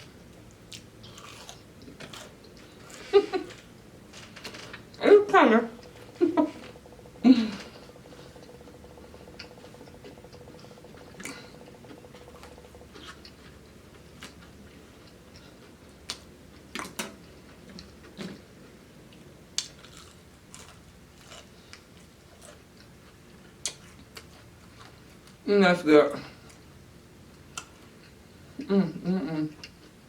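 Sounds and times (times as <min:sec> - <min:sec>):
person chewing fried chicken: 0:00.0 - 0:03.8, 0:05.8 - 0:18.5, 0:19.6 - 0:25.4
faint steady hum: 0:00.0 - 0:30.0.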